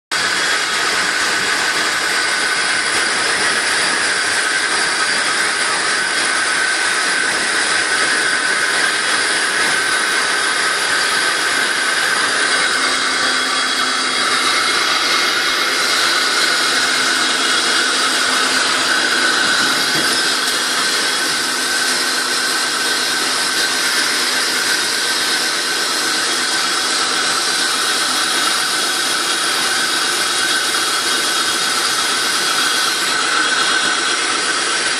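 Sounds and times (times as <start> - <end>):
train wheels roaring on rails: 0.2 - 34.9
rushing air: 10.2 - 24.6.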